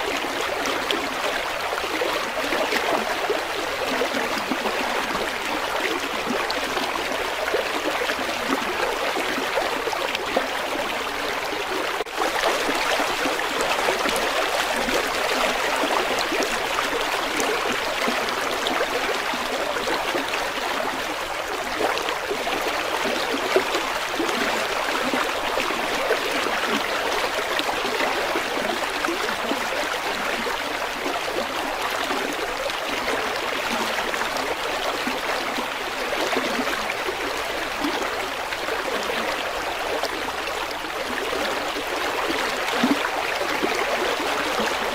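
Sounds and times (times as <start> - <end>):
river water rushing: 0.0 - 29.4.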